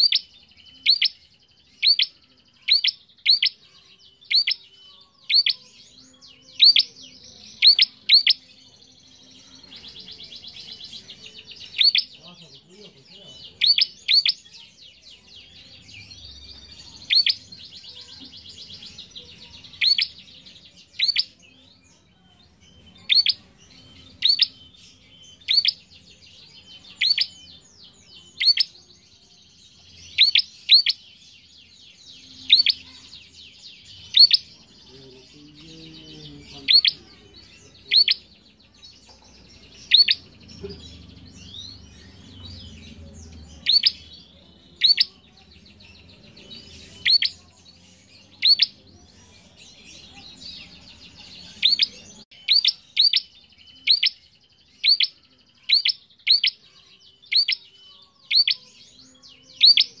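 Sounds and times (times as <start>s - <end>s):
faint fast bird trill: 0.0s - 8.4s, 9.5s - 12.2s, 13.6s - 14.8s, 15.8s - 21.5s, 22.7s - 26.1s, 26.7s - 27.6s, 28.2s - 29.0s, 30.0s - 31.0s, 32.2s - 34.6s, 36.6s - 38.3s, 39.6s - 40.3s, 41.3s - 44.1s, 44.8s - 45.2s, 46.5s - 60.0s.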